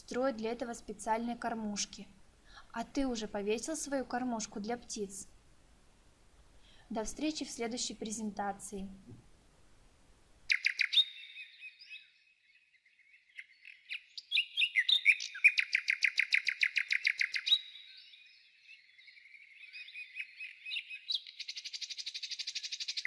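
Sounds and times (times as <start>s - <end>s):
songbird chirping and trilling: 10.5s - 23.0s.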